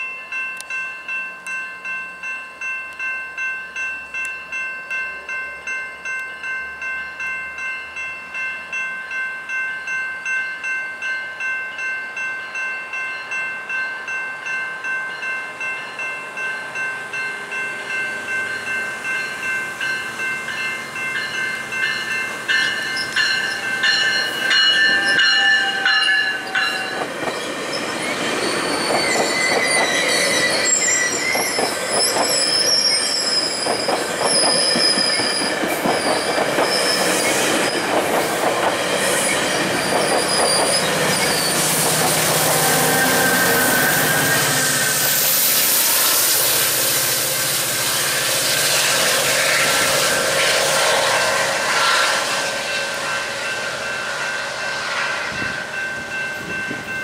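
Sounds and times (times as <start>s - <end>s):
level crossing bells ringing: 0.0s - 45.6s
train wheels squealing and clacking: 18.6s - 57.0s.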